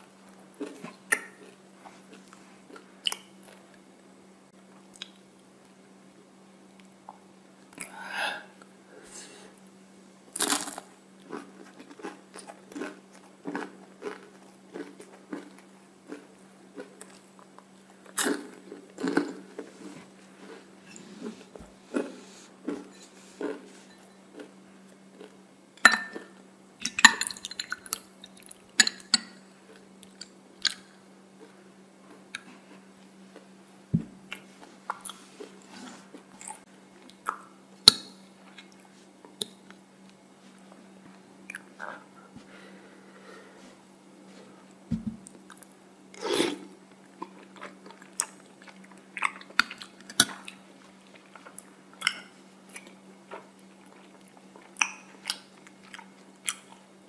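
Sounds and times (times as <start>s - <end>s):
low steady hum: 0.0s - 57.0s
chewing and crunching waffle cone: 10.3s - 25.4s, 47.0s - 57.0s.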